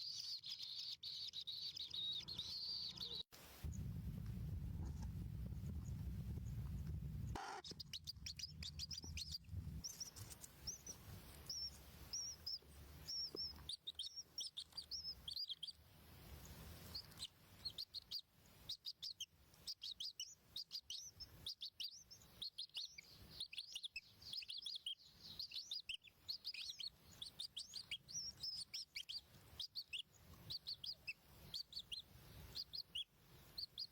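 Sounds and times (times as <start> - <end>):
nestlings chirping: 0.0 - 3.8, 5.6 - 33.9
low hum: 3.6 - 7.4.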